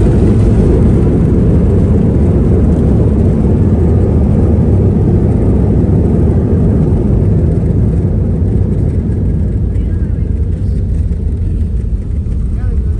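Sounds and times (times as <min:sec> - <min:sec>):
jet engines rumbling in cabin: 0:00.0 - 0:12.9.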